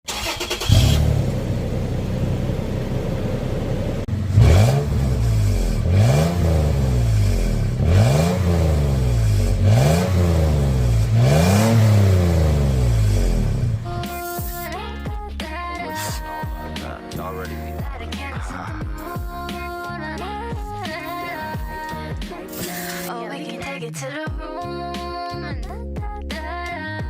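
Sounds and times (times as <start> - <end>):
engine starting: 0.0 - 1.3
engine idling and revving: 0.0 - 14.1.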